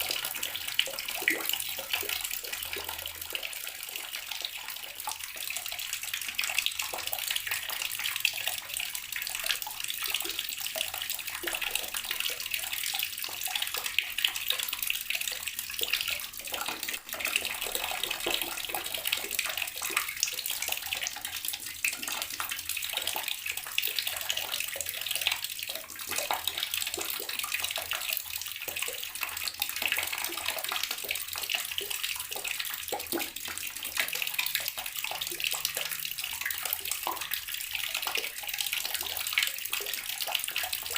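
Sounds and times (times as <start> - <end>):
tap water splashing: 13.1 - 40.9.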